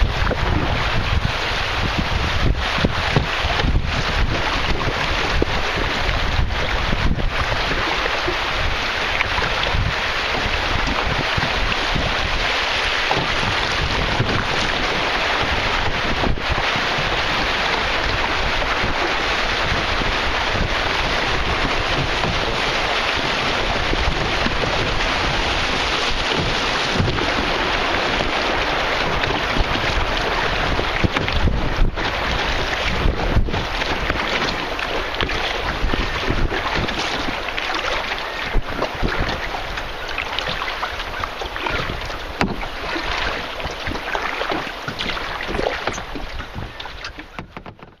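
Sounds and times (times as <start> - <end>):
river water rushing: 0.0 - 47.7
wind buffeting microphone: 0.0 - 48.0
knock against boat: 3.1 - 3.8, 41.6 - 42.7, 43.8 - 48.0.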